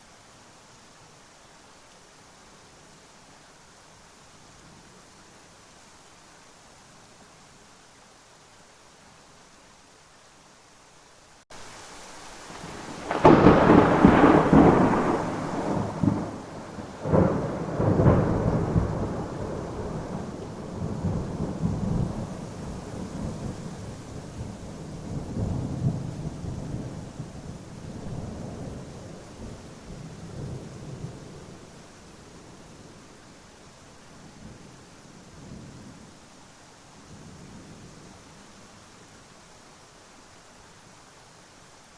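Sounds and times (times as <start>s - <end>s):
steady rain: 0.0s - 41.9s
thunder cracks: 12.6s - 22.3s
rumble of thunder: 12.6s - 31.6s.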